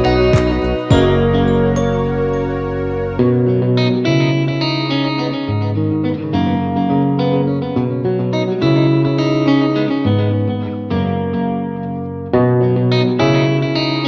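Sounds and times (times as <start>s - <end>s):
bass line: 0.0s - 3.9s
electric guitar melody: 0.0s - 14.0s.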